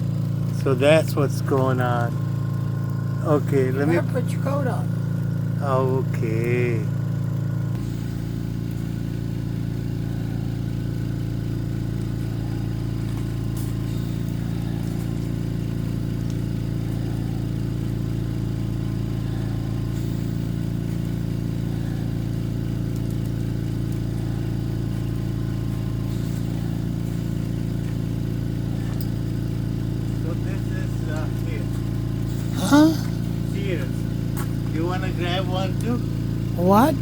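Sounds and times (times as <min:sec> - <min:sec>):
engine idling: 0:00.0 - 0:37.0.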